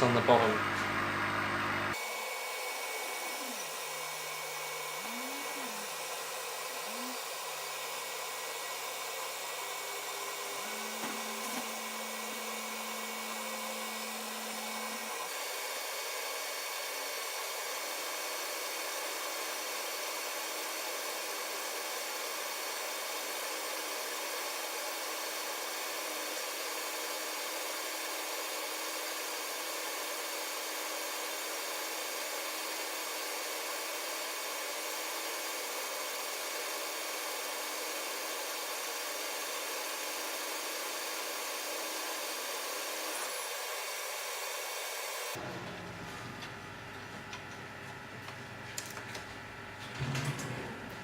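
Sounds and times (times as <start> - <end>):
laser cutter air hiss: 9.8 - 45.4.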